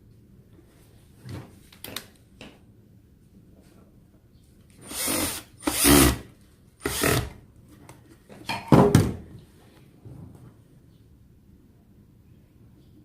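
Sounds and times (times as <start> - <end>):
power drill bursts: 4.8 - 6.2, 6.8 - 7.3.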